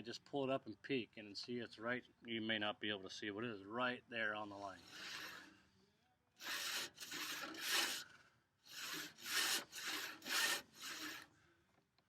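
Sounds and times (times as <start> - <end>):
hand saw rasping through wood: 6.4 - 8.0, 8.7 - 11.2.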